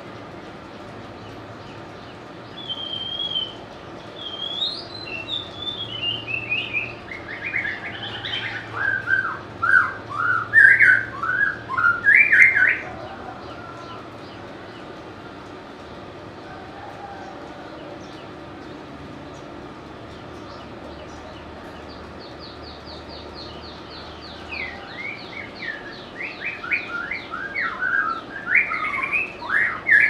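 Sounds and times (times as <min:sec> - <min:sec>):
bird singing whistled notes: 0:02.5 - 0:03.6, 0:04.2 - 0:12.9, 0:22.4 - 0:30.0.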